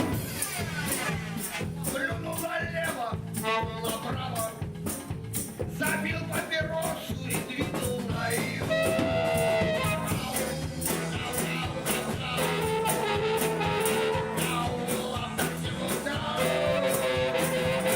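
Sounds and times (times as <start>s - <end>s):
bass line: 0.0s - 17.9s
drums beating on cymbals: 0.0s - 17.9s
guitar: 0.0s - 17.9s.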